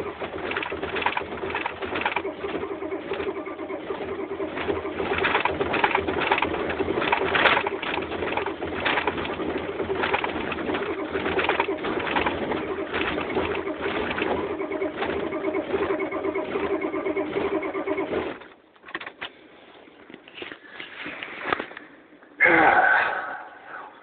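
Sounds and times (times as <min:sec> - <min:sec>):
diesel engine cranking on starter: 0:00.0 - 0:19.2.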